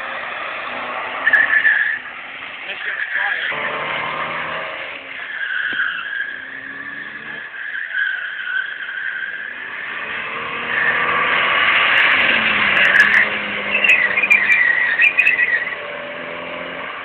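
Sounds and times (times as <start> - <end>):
car engine: 0.0 - 17.0
tyres squealing and skidding: 0.0 - 17.0.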